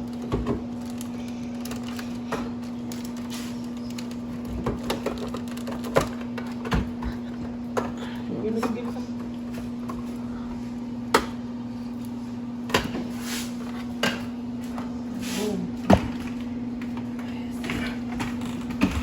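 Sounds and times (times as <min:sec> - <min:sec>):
cabinet doors and groceries knocking: 0:15.9 - 0:16.3.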